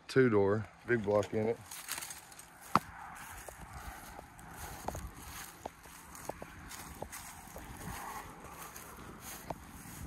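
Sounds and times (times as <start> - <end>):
footsteps on dry ground: 0.6 - 10.0.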